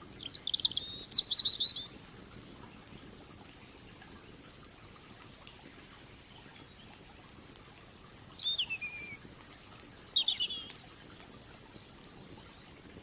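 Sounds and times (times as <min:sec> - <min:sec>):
campfire crackling: 0:00.0 - 0:13.0
creek water flowing: 0:00.0 - 0:13.0
bird chirping: 0:00.2 - 0:02.0, 0:08.4 - 0:10.8.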